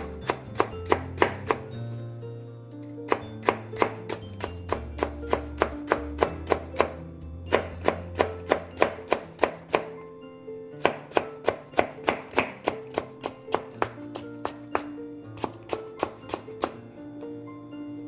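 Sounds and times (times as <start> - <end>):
knife chopping on cutting board: 0.0 - 1.7, 3.1 - 9.9, 10.8 - 16.8
background music: 0.0 - 18.0.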